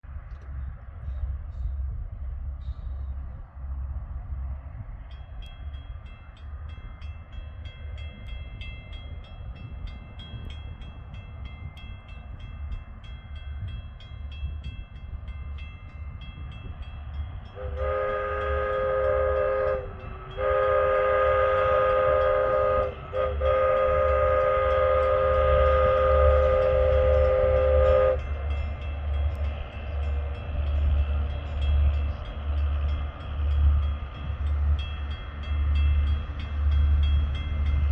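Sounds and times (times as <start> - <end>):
low engine rumble: 0.0 - 37.9
rail vehicle horn blasts: 17.4 - 28.8.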